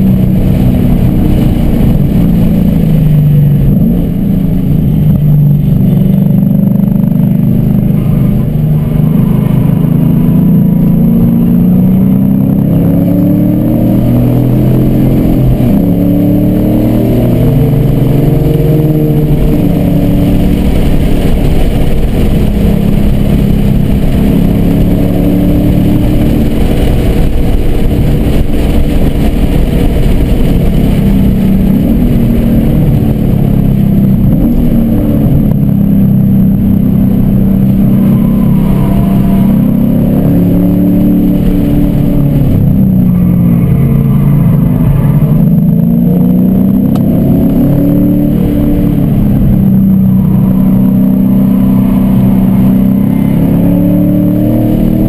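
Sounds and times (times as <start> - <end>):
car engine accelerating hard: 0.0 - 55.0.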